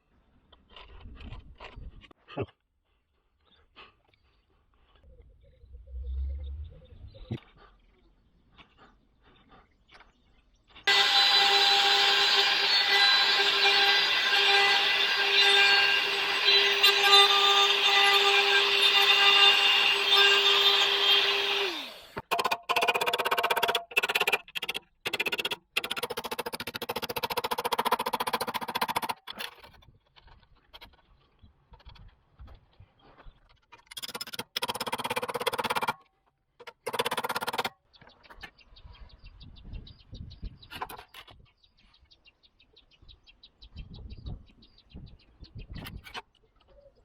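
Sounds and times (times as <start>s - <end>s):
power tool cutting sheet metal: 10.9s - 29.4s, 34.0s - 36.0s, 36.7s - 37.7s.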